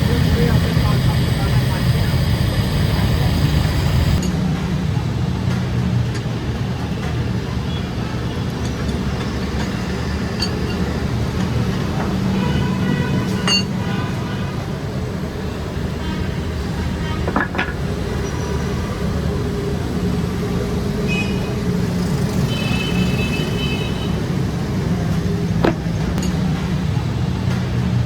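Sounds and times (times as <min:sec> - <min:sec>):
machine humming: 0:00.0 - 0:04.2.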